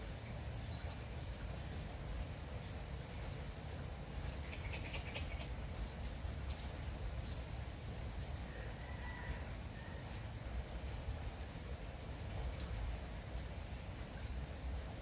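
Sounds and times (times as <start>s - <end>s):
light rain with drips: 0.0s - 15.0s
bird chirps: 4.2s - 5.9s.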